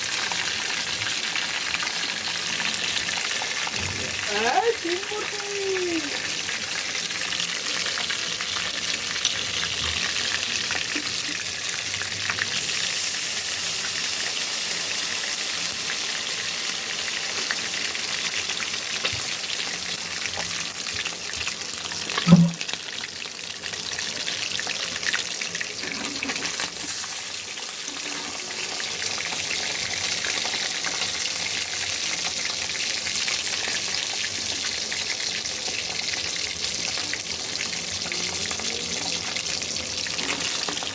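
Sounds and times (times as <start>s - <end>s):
fish sizzling in hot oil: 0.0s - 40.9s
sharp knock: 22.2s - 22.6s.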